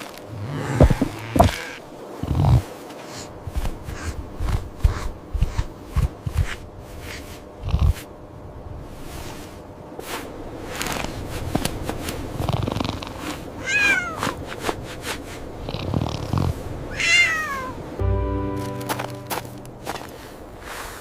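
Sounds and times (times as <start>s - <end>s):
low buzzing hum: 0.0s - 2.7s
cat meowing: 13.6s - 14.3s, 16.9s - 17.8s.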